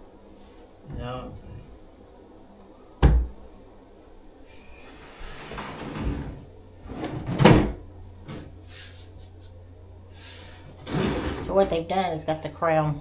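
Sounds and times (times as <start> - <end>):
low steady hum: 0.0 - 13.0
object scraping on hard floor: 4.5 - 7.4, 8.2 - 9.1, 10.2 - 11.7.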